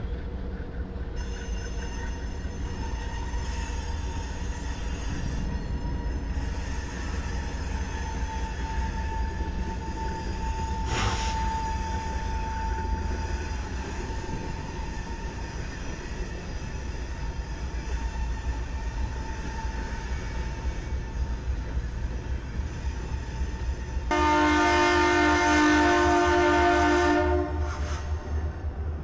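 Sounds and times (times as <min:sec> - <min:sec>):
freight train rolling past: 0:00.0 - 0:29.0
locomotive horn blowing: 0:24.1 - 0:28.2.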